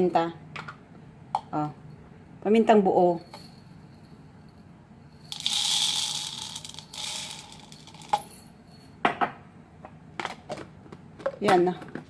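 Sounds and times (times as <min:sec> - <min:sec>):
peppercorns rattling into plastic cup: 0:05.3 - 0:08.4.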